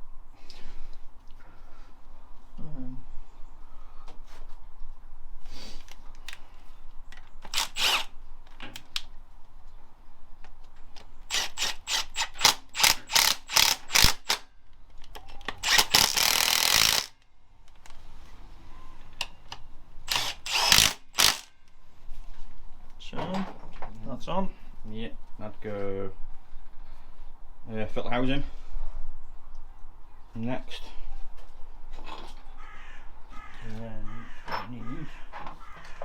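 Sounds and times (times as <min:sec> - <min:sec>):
tool clicking tightening bolts: 0:11.3 - 0:14.4, 0:15.5 - 0:17.1, 0:20.1 - 0:21.5.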